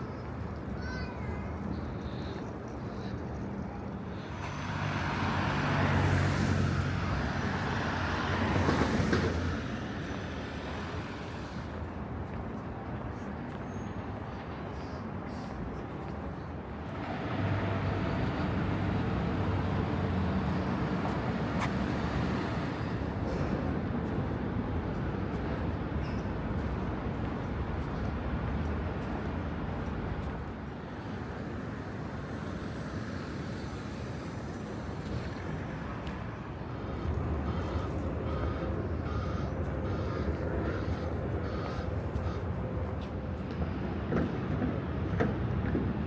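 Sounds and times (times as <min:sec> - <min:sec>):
vehicle passing with tyre noise: 0:04.2 - 0:11.9, 0:16.9 - 0:46.0.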